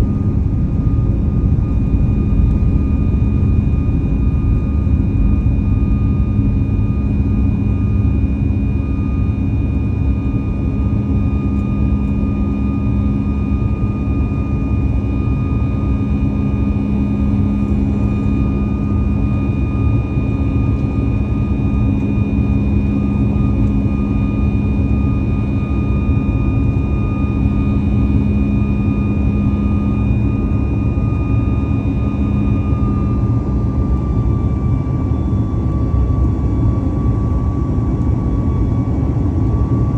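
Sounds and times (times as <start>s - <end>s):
whining engine tones: 0.0s - 9.0s
jet engine rumble and airflow: 0.0s - 39.9s.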